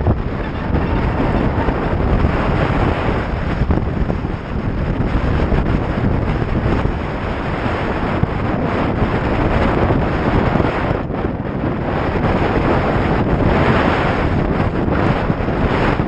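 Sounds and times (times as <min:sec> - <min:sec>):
strong wind buffeting microphone: 0:00.0 - 0:16.0.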